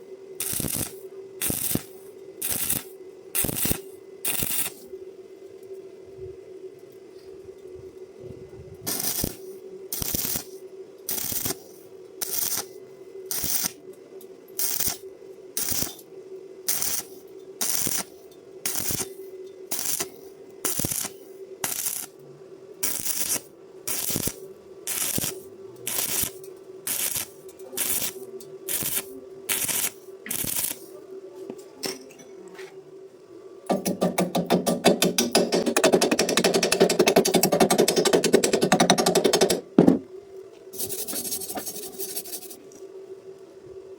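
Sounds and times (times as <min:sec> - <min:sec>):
faint steady hum: 0:00.0 - 0:43.9
crackling welding arc: 0:00.4 - 0:04.9, 0:08.8 - 0:13.9, 0:14.6 - 0:22.2, 0:22.8 - 0:31.0, 0:40.7 - 0:42.6.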